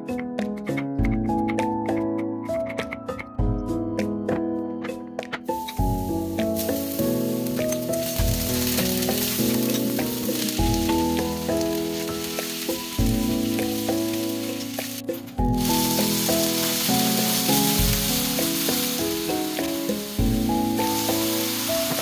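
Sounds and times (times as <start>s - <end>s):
background music with melody: 0.0s - 22.0s
oil sizzling in a frying pan: 5.8s - 22.0s
wooden spoon stirring: 6.5s - 22.0s.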